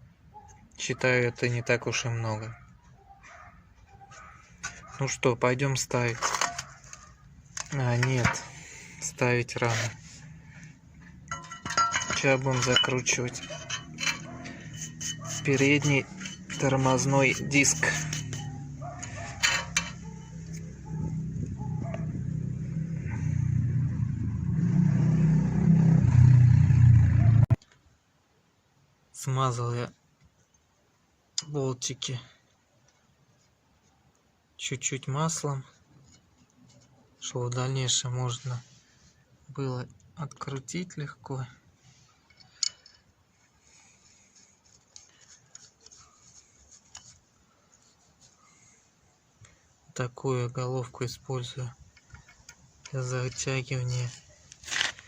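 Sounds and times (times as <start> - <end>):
metallic clicks of steel parts: 11.0 - 20.7, 42.2 - 43.1, 51.8 - 55.0.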